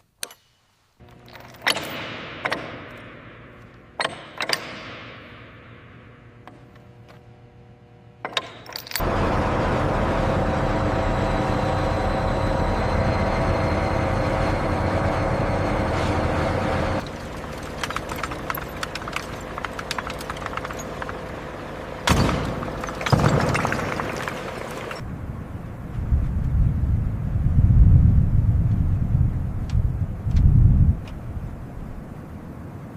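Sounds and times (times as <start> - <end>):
machine running loudly: 9.0 - 25.0
heavy knocks: 17.0 - 25.0.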